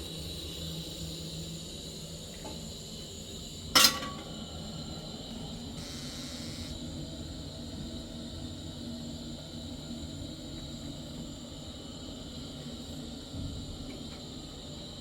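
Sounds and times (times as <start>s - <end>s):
sharp metallic clank: 3.8s - 4.3s.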